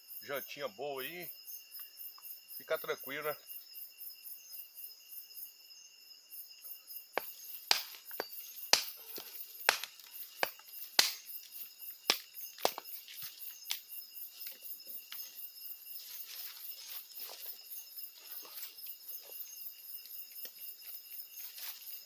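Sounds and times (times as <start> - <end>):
crickets trilling: 0.0 - 22.0
sharp irregular clicks and snaps: 8.7 - 11.2.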